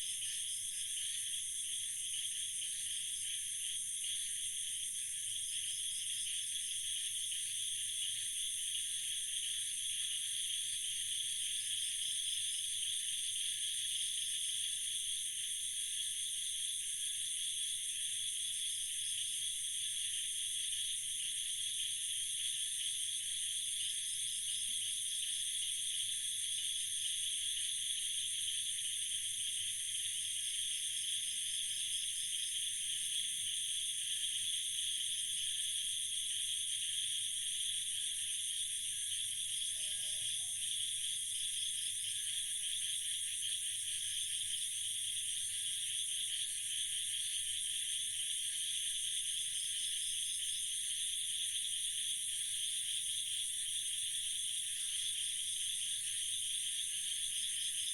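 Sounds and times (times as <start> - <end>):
night insects trilling: 37.3 - 44.6.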